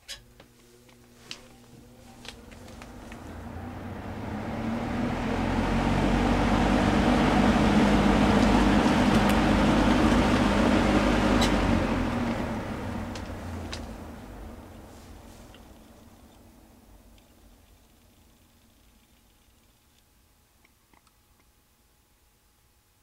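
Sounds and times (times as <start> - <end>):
fan motor hum: 0.0 - 19.7
box fan air rushing: 1.1 - 17.0.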